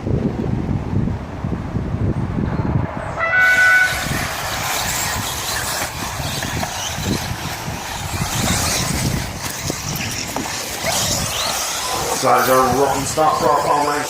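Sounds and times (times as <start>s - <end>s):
horn-like start tone: 3.2s - 4.2s
rc cars motors hissing: 3.5s - 14.0s.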